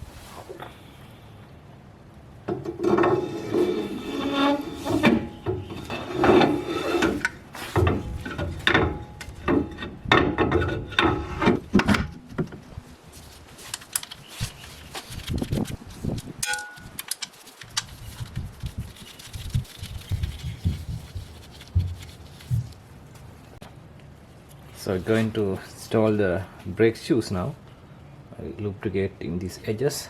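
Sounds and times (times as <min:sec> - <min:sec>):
metal clunks and scrapes: 0:02.5 - 0:12.6
short metallic ring: 0:16.4 - 0:16.9.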